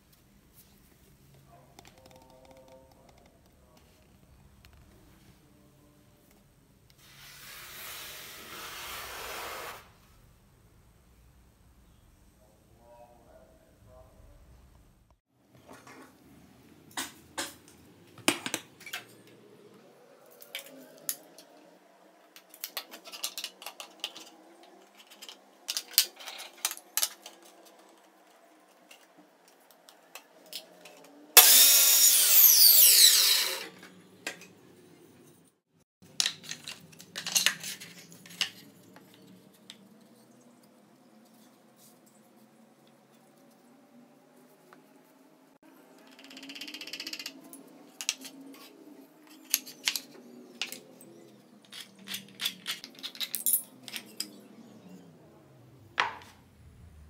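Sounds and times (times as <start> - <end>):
miter saw cutting wood: 31.4 - 33.8.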